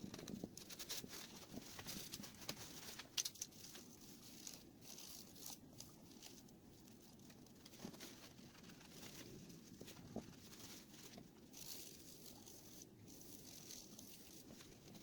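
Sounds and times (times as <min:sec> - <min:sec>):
hands rustling and scraping: 0:00.0 - 0:15.0.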